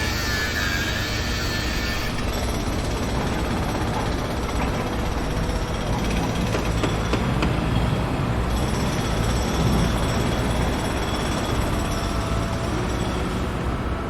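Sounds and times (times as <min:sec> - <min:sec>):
heavy machinery rumbling: 0:00.0 - 0:14.0.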